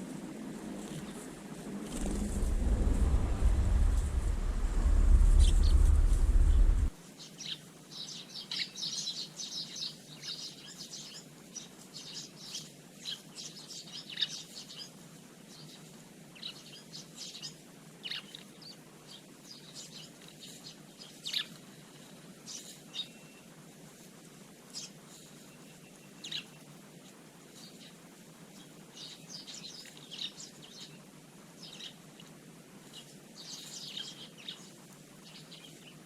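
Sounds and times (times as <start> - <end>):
loud low rumble: 1.7 - 7.0
sparrows chirping: 5.4 - 15.8, 22.5 - 23.4, 24.7 - 26.6, 28.6 - 32.0, 32.9 - 36.0.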